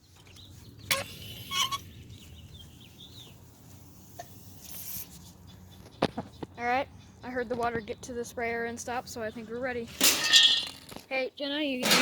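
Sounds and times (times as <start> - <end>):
bird chirps: 0.0 - 3.8.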